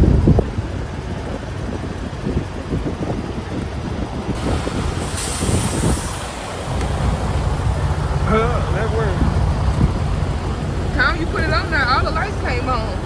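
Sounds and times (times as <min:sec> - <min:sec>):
diesel truck engine rumbling: 0:00.0 - 0:13.0
hissing burst: 0:04.4 - 0:11.0.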